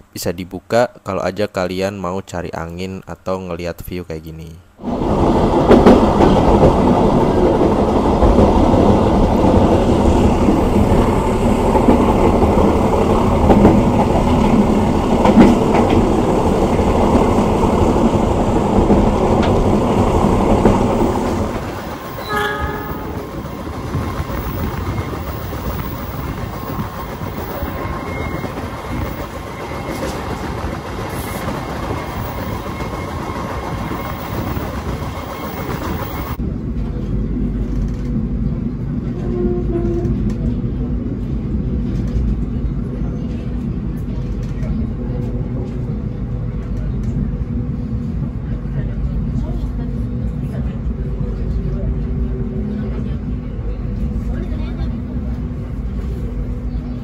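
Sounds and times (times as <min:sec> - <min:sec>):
train wheels on rails: 0:04.8 - 0:57.0
train horn blast: 0:22.2 - 0:23.3, 0:39.1 - 0:40.2.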